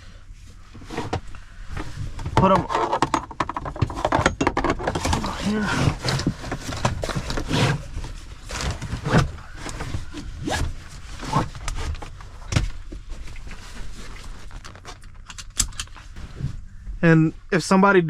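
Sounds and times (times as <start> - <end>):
seat belt webbing rustling: 5.2 - 16.6.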